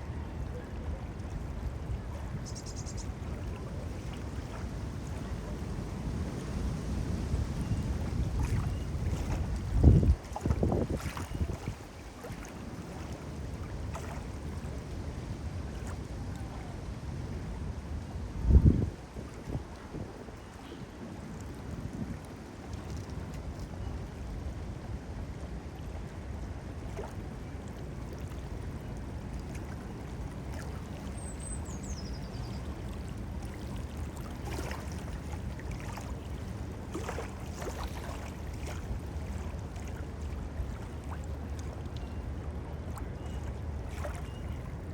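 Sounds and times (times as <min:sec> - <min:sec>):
wind rumbling on microphone: 0:00.0 - 0:23.5
water lapping: 0:00.2 - 0:17.5, 0:26.7 - 0:44.9.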